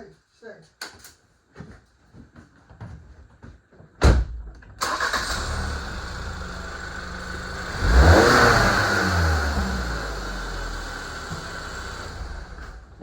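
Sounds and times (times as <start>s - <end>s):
thump: 4.0s - 4.7s
car engine starting and revving: 4.8s - 13.0s.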